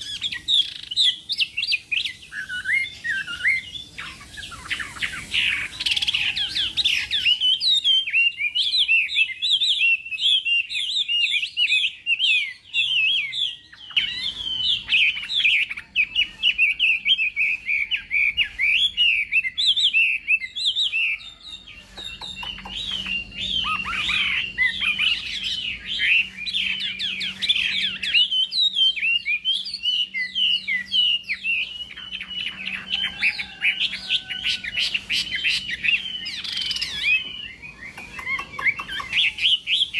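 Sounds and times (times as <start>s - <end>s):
bird singing whistled trills: 0.0s - 39.9s.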